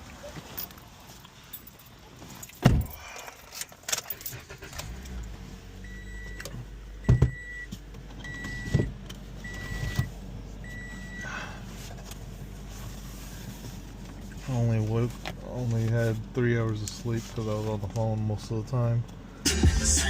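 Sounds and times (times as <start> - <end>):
keys jangling: 1.5 - 4.6
thump inside car: 2.6 - 3.0
car warning chime beeps: 5.8 - 11.3.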